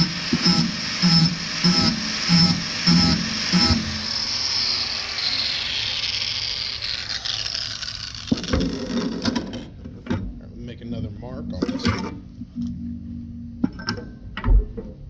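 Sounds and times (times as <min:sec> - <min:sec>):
angle grinder grinding metal: 0:00.0 - 0:09.4.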